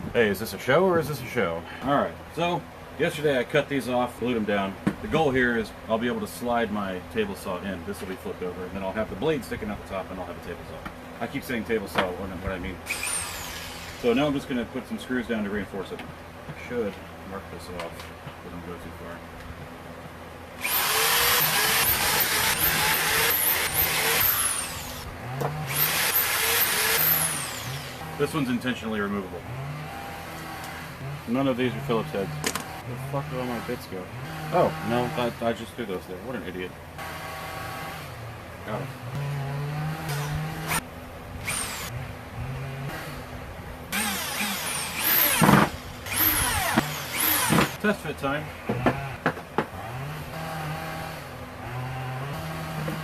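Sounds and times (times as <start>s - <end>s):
power drill driving screws: 12.9s - 14.3s, 20.6s - 28.1s, 40.0s - 40.8s, 41.4s - 42.0s, 43.9s - 47.8s.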